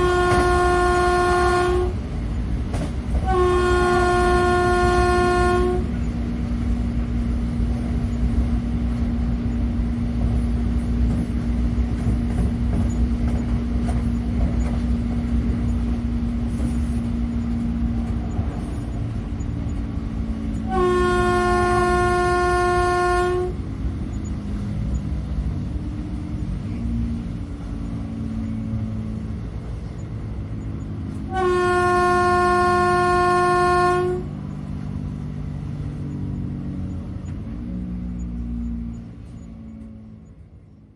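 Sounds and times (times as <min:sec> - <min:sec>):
train horn blasts: 0:00.0 - 0:02.0, 0:03.2 - 0:06.0, 0:20.6 - 0:23.7, 0:31.2 - 0:34.4
train rumbling: 0:00.0 - 0:40.9.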